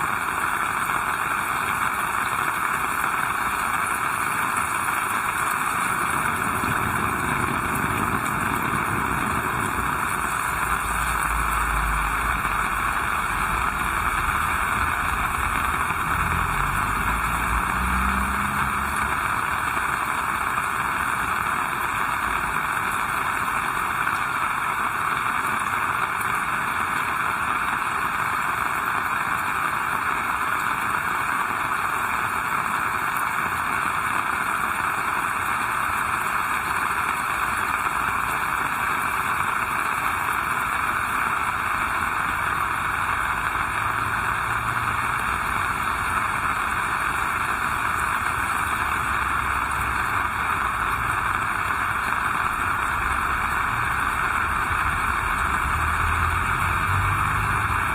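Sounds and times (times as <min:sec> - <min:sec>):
heavy rain falling: 0:00.0 - 0:57.9
faint low rumble: 0:05.9 - 0:19.6.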